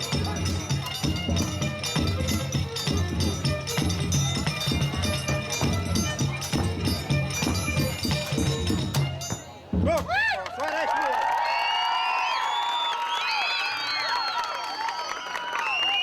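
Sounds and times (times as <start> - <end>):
low drum beat: 0.0 - 10.2
rattling percussion: 0.0 - 10.2.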